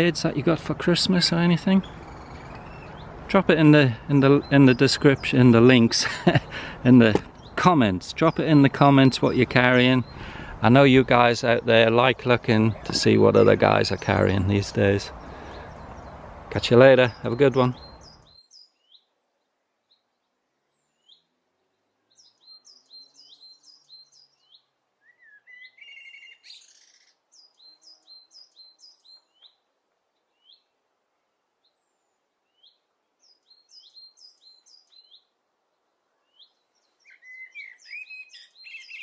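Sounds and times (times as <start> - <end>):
small birds chirping: 0.0 - 39.0
bird warbling: 1.1 - 3.1.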